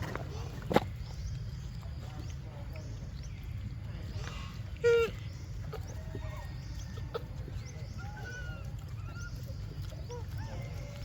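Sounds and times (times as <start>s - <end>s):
high chirping animal calls: 4.2s - 11.0s.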